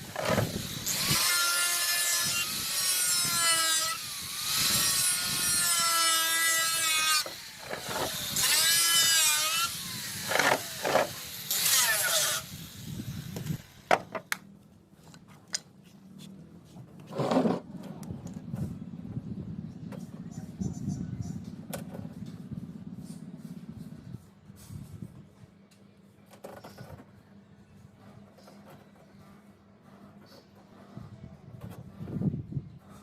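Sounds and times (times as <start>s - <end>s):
power tool cutting fiberglass: 0.0s - 13.6s.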